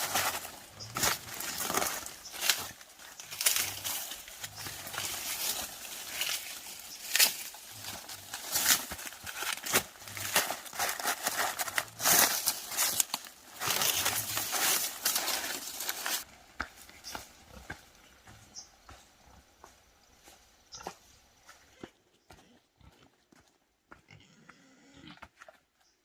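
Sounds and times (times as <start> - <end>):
crinkling rustling handling noise: 0.0 - 16.3.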